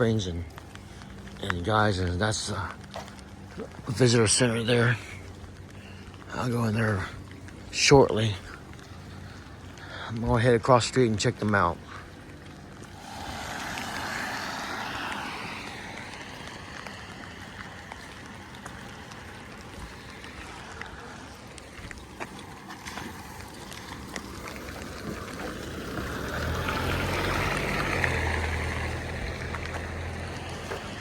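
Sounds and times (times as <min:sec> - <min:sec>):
steady outdoor hiss: 0:00.0 - 0:31.0
faint ticks: 0:05.2 - 0:06.4
vehicle passing by: 0:12.8 - 0:20.8, 0:23.0 - 0:31.0.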